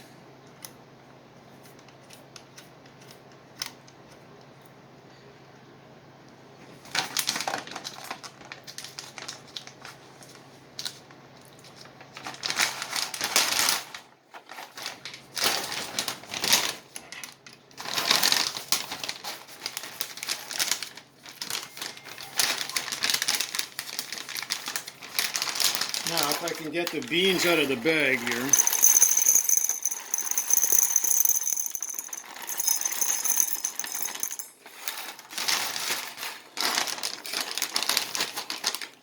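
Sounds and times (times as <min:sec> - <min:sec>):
bag crinkling and rustling: 0:06.9 - 0:11.0, 0:11.6 - 0:16.9, 0:17.8 - 0:39.0.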